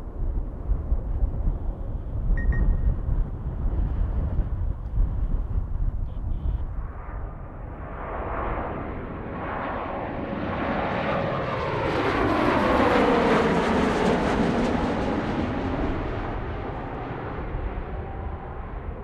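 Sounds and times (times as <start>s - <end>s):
jet airliner passing: 5.6s - 19.0s.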